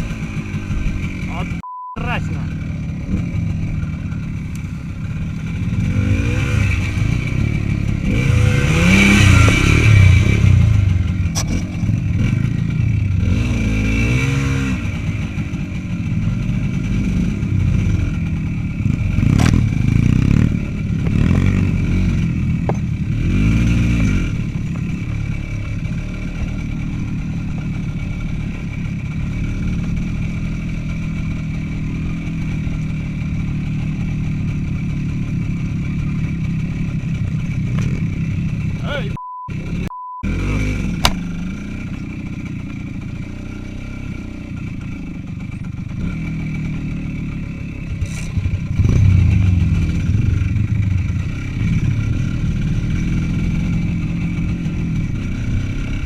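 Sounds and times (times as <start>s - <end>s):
motorcycle rattling: 0.0s - 56.0s
small motorcycle engine revving: 0.0s - 56.0s
sharp knocks from bike: 19.3s - 19.6s, 41.0s - 41.2s.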